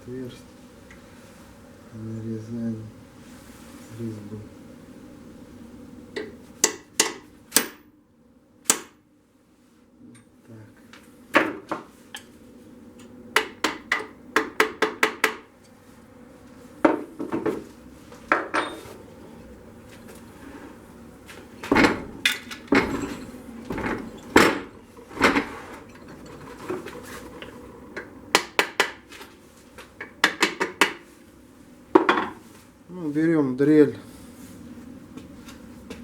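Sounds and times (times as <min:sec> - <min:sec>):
metal tools clinking on metal: 0:18.5 - 0:19.0, 0:22.3 - 0:24.7.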